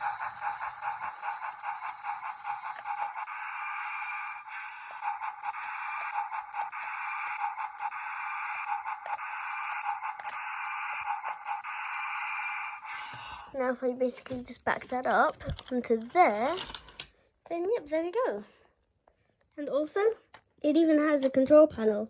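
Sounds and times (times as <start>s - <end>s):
wheels clicking on wooden track: 0.0s - 11.7s
toy train motor running: 0.0s - 17.1s.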